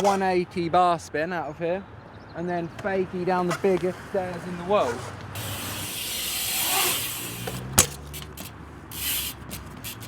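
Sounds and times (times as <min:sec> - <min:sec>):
bike tyres rolling on concrete: 0:02.6 - 0:10.0
bike clicks and rattles: 0:02.8 - 0:10.0
bike landing impact: 0:04.8 - 0:10.0.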